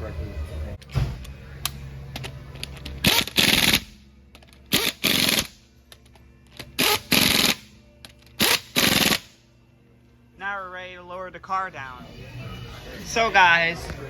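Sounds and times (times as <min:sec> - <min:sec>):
impact wrench hammering: 0:04.7 - 0:05.6, 0:06.8 - 0:07.7, 0:08.4 - 0:09.3.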